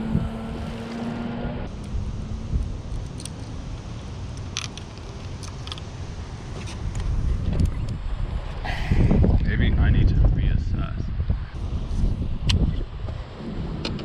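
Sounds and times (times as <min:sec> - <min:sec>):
wind buffeting microphone: 0:00.0 - 0:00.8, 0:05.8 - 0:14.0.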